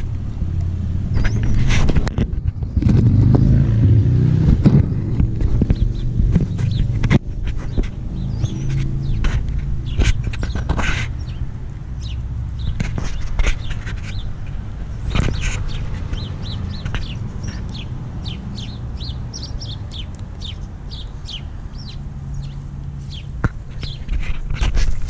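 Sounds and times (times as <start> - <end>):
small birds chirping: 0.0 - 25.0
knocks and rustles: 1.1 - 3.6, 4.4 - 11.2, 12.6 - 17.6, 23.4 - 25.0.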